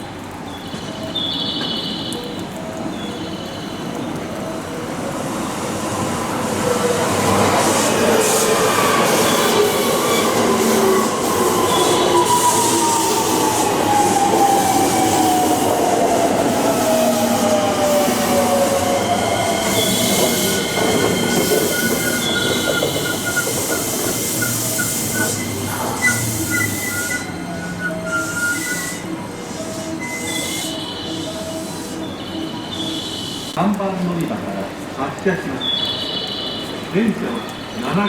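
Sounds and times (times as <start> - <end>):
wheels rumbling on rail: 0.0 - 33.6
high steady squealing: 5.4 - 33.4.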